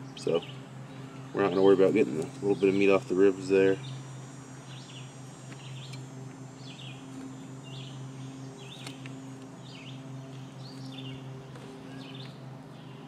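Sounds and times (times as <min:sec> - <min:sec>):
steady low hum: 0:00.0 - 0:13.0
small bird chirping: 0:03.7 - 0:13.0.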